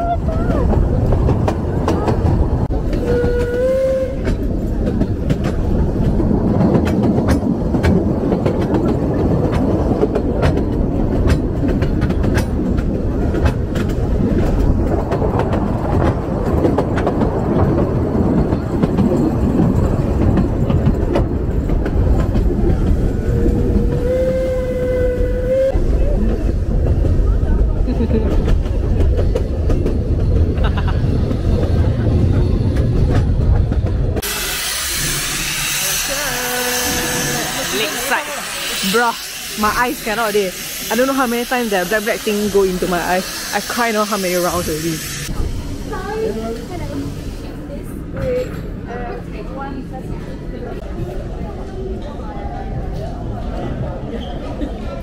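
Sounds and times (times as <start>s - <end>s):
train carriages rumbling: 0.0s - 55.0s
wheels clacking over rail joints: 0.3s - 24.0s.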